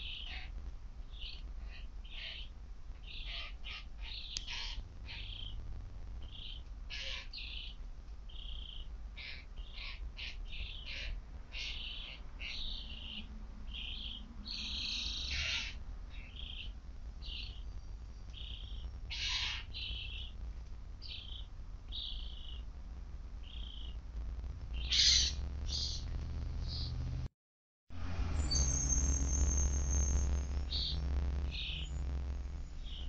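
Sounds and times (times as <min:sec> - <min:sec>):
birds chirping: 0:00.0 - 0:20.4, 0:21.0 - 0:22.7, 0:23.4 - 0:27.2, 0:28.4 - 0:33.0.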